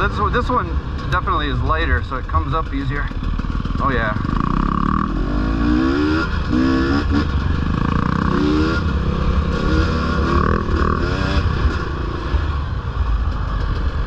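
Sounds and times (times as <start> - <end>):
dirt bike engine revving: 2.8 - 12.7.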